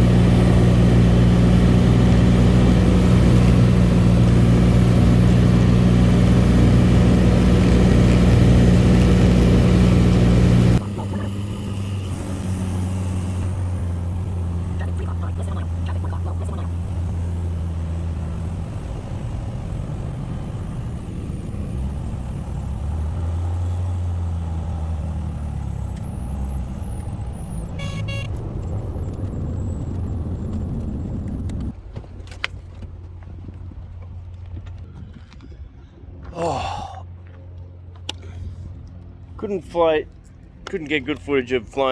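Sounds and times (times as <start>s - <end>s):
light aircraft engine drone: 0.0s - 41.9s
short beeping tone: 27.7s - 28.4s.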